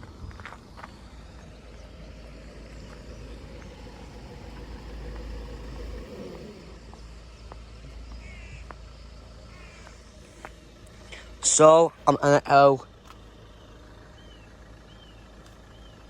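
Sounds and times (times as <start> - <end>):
train passing with whine: 0.0 - 8.1
birds chirping: 0.0 - 16.0.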